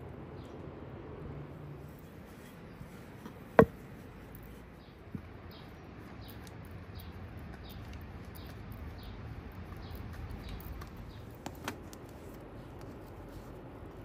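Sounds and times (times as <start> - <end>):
steady outdoor hiss: 0.0 - 14.0
bird chirping: 4.3 - 11.4.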